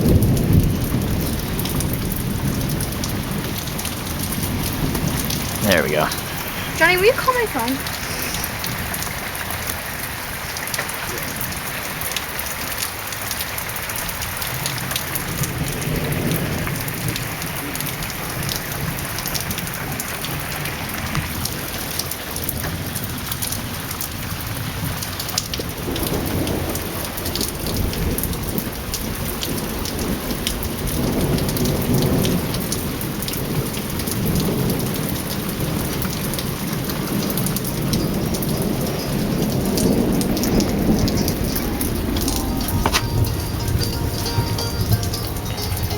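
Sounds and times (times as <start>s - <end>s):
rolling thunder: 0.0s - 6.8s, 13.8s - 21.9s
heavy rain pouring: 0.0s - 45.9s.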